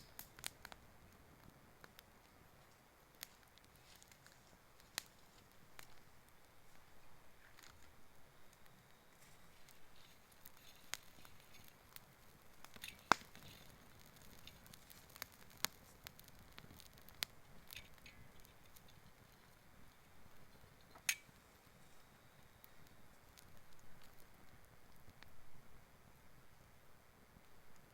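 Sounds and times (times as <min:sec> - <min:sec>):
sharp fire pops: 0:00.0 - 0:02.4, 0:08.5 - 0:19.4
campfire crackling: 0:00.0 - 0:27.9.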